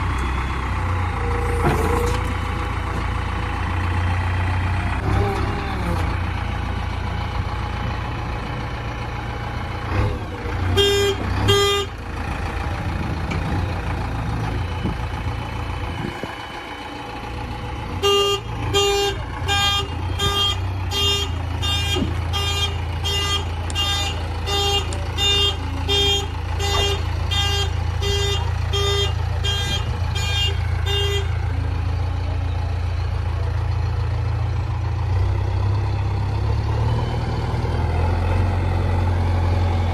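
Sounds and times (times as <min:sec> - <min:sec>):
heavy diesel engine running: 0:00.0 - 0:39.9
horn blasts: 0:10.7 - 0:11.9, 0:18.0 - 0:31.4.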